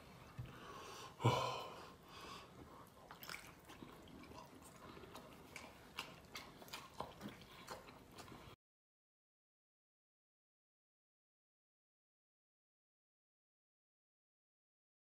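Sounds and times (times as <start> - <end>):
chewing and lip smacking: 2.4 - 8.6.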